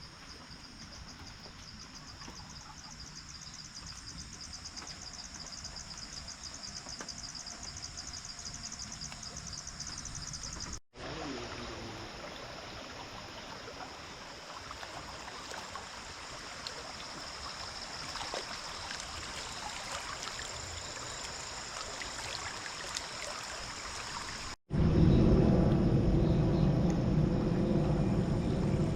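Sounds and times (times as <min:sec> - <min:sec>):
high insect drone: 0:00.0 - 0:14.4
stream water running: 0:00.0 - 0:24.6
insects chirping in pulse: 0:00.0 - 0:28.9.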